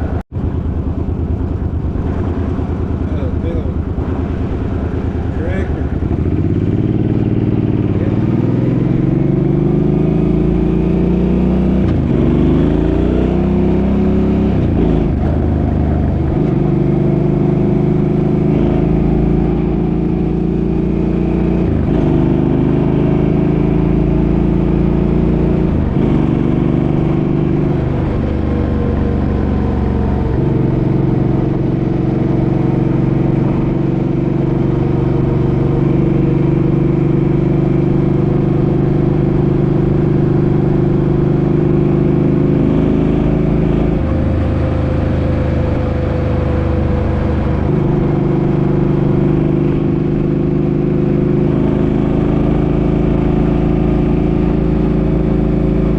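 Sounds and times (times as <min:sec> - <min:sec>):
engine pulling through gears: 0:00.0 - 0:55.9.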